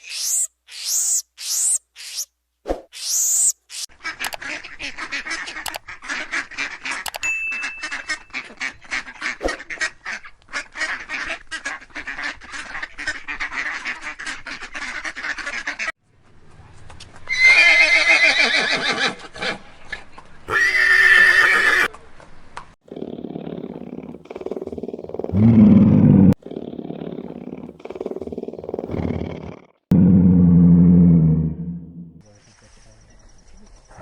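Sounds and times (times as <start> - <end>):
horse whinnying: 20.5 - 21.9.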